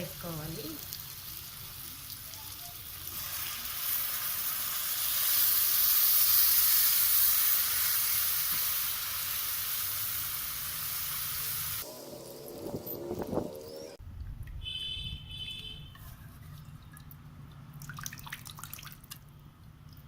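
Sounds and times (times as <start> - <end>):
liquid sizzling in hot pan: 0.0 - 13.8.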